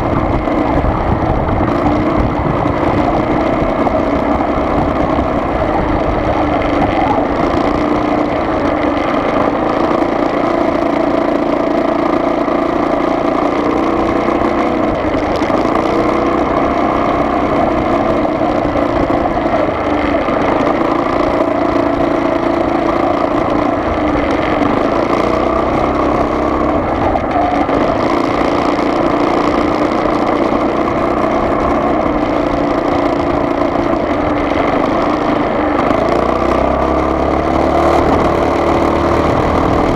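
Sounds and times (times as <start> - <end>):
car engine running: 0.0 - 39.9
road noise: 0.0 - 39.9.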